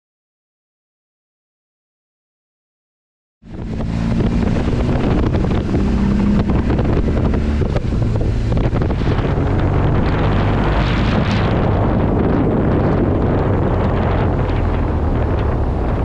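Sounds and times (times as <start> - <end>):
vehicle engine drone: 3.4 - 16.0
wind buffeting microphone: 3.4 - 16.0.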